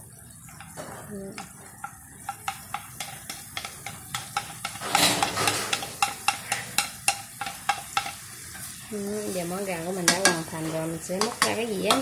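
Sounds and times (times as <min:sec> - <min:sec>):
chicken wings sizzling in wok: 0:00.0 - 0:12.0
utensil tapping and scraping: 0:00.4 - 0:08.8, 0:10.0 - 0:12.0
onions scraped from plate: 0:04.5 - 0:06.8.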